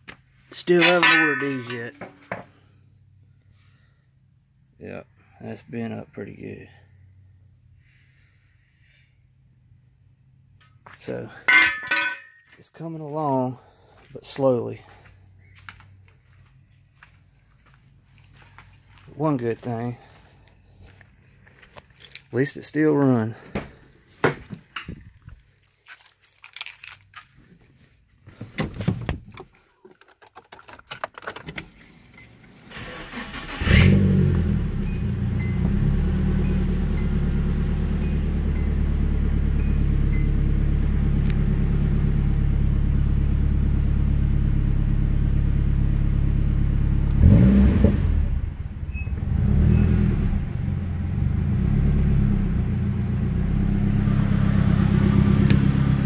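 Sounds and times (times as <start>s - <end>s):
faint handling sounds: 24.0s - 31.1s
car engine starting and idling: 30.5s - 56.0s
engine revving: 32.7s - 56.0s.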